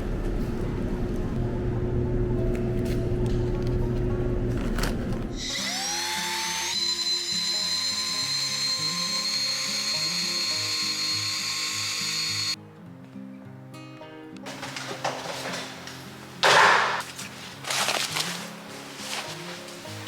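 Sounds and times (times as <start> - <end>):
background music: 1.6 - 20.0
small electric motor whining: 5.4 - 12.6.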